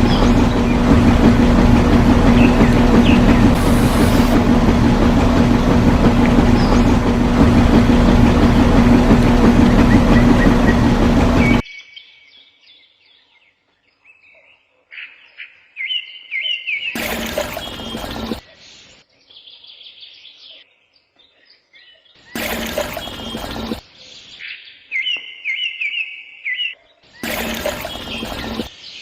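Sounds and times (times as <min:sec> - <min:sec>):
loud mechanical noise with low hum: 0:00.0 - 0:11.6, 0:17.0 - 0:18.5, 0:22.4 - 0:23.9, 0:27.2 - 0:28.8.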